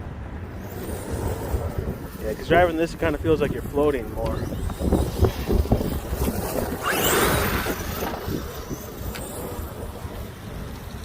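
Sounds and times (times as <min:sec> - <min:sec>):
wind buffeting microphone: 0:00.0 - 0:11.0
toy truck motor whine: 0:04.2 - 0:11.0.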